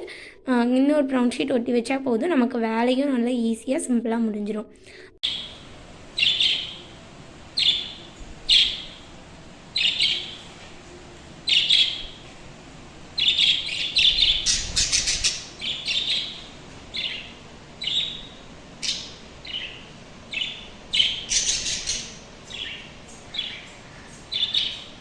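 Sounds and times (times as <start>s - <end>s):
lovebirds chirping: 5.2s - 25.0s.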